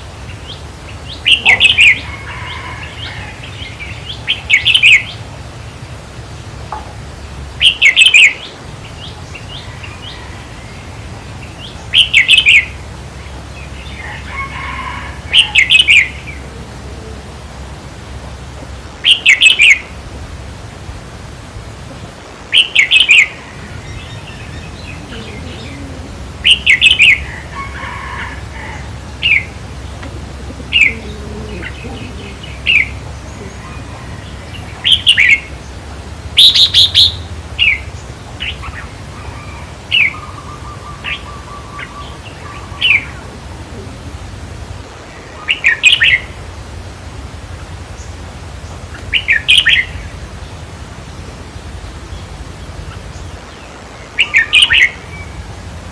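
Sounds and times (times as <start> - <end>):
bulbul singing warbled phrases: 0.0 - 55.9
faint low hum: 8.7 - 19.1, 23.4 - 45.0.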